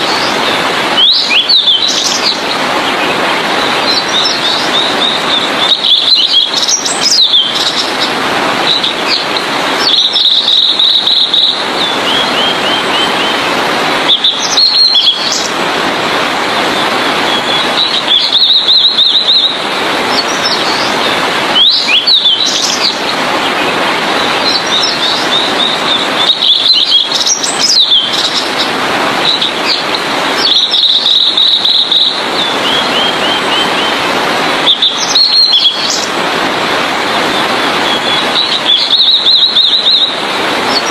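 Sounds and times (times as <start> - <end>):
flycatcher singing: 3.8 - 8.0, 8.7 - 13.4, 14.1 - 15.5, 24.3 - 34.0, 34.6 - 36.1, 37.8 - 40.9.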